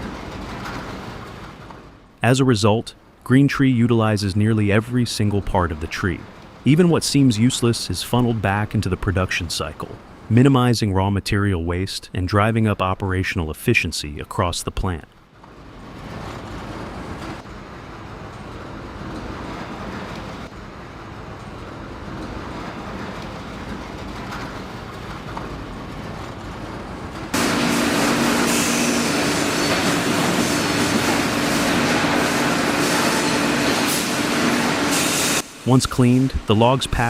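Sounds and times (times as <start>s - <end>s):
steady hum: 0.0s - 19.0s, 26.3s - 37.0s
sawmill machinery rattling: 22.3s - 37.0s.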